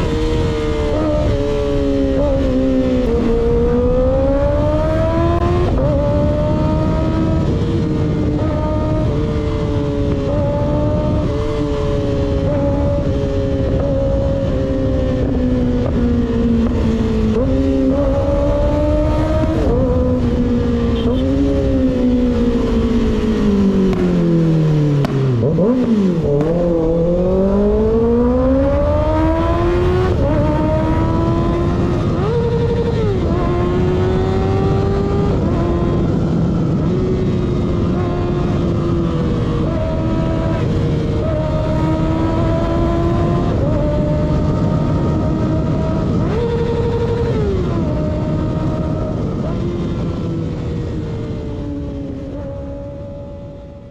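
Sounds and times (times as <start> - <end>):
motorcycle engine revving: 0.0 - 53.9
wind rumble on microphone: 0.0 - 53.9.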